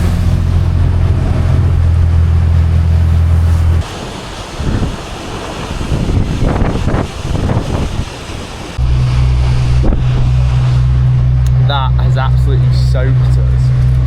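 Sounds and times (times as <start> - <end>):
low engine hum: 0.0 - 3.9, 8.8 - 14.0
rushing water and spray: 0.0 - 14.0
wind buffeting microphone: 0.0 - 14.0.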